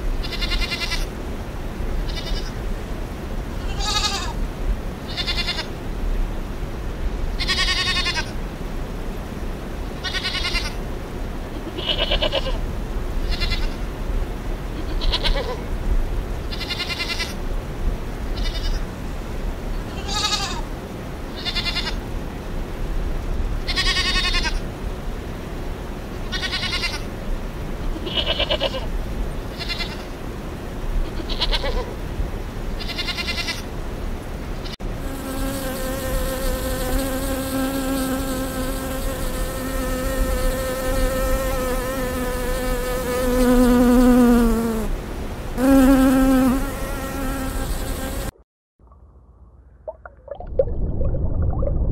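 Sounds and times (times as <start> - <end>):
lambs bleating: 2.1 - 2.6, 3.7 - 4.3, 5.1 - 5.7, 7.4 - 8.2, 10.0 - 10.8, 13.3 - 13.8, 16.5 - 17.4, 18.4 - 18.8, 20.0 - 20.6, 28.0 - 28.8, 29.6 - 30.1
honeybees buzzing: 45.6 - 48.3.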